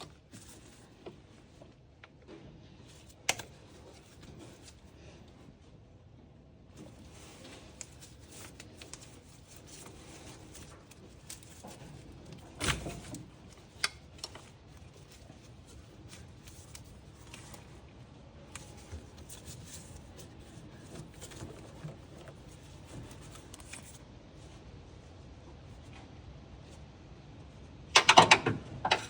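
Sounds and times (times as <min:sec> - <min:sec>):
hands handling tools and hoses: 0:00.0 - 0:05.4, 0:06.8 - 0:24.0.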